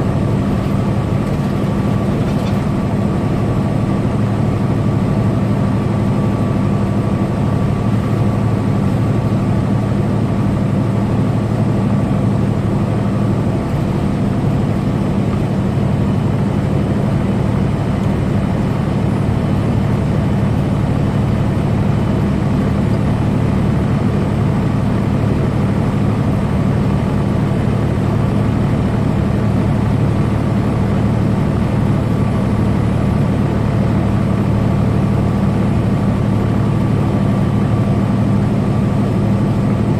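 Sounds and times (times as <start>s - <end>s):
truck engine and road noise: 0.0s - 39.9s.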